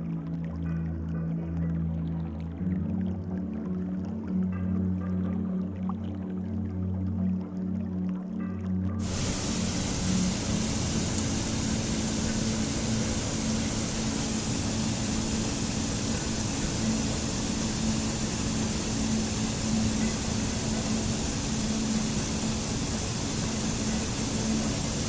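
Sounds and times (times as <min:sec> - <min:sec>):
music: 0:00.0 - 0:25.0
running water rushing: 0:09.0 - 0:25.0.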